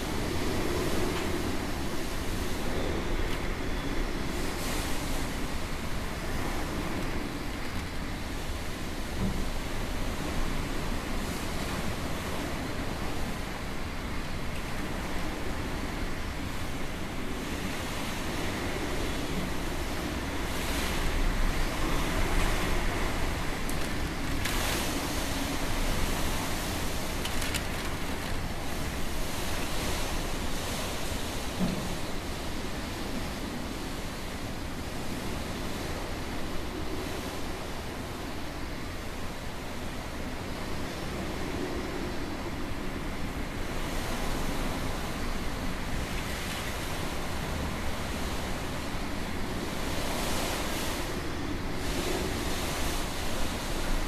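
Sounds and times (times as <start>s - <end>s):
strong wind buffeting microphone: 0.0s - 54.0s
faint clicks: 27.2s - 28.4s.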